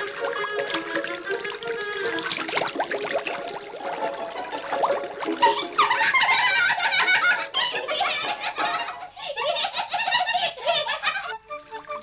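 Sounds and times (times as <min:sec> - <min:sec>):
high-pitched voices giggling: 0:05.4 - 0:11.6.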